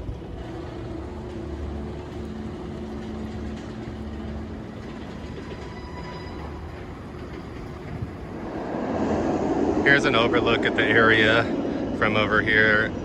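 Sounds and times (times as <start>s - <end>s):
roller coaster rumbling on track: 0.0s - 13.0s.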